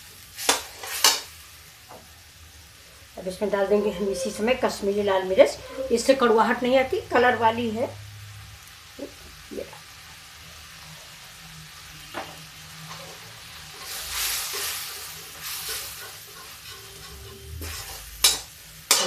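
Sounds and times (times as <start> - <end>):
masala sizzling in oil: 0.0 - 19.0
spoon stirring and scraping: 3.4 - 6.6, 12.9 - 19.0.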